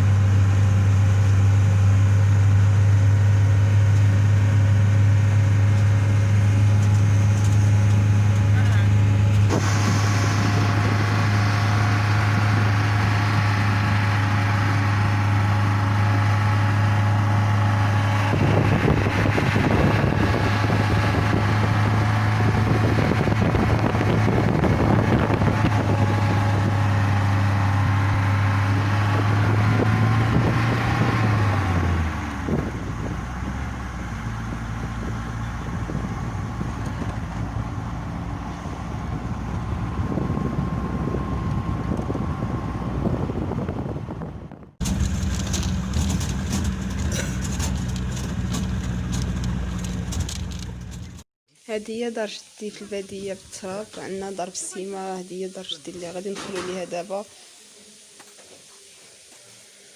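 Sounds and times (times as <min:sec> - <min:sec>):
road noise: 0:00.0 - 0:51.3
vehicle engine humming: 0:00.0 - 0:51.3
rattling: 0:44.8 - 0:51.2.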